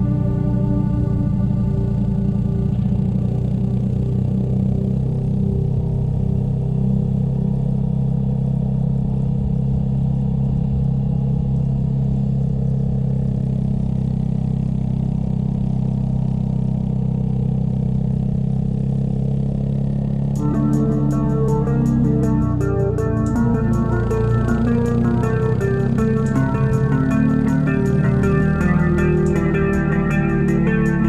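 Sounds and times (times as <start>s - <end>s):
motorcycle engine running: 0.0s - 31.0s
guitar music: 20.4s - 31.0s.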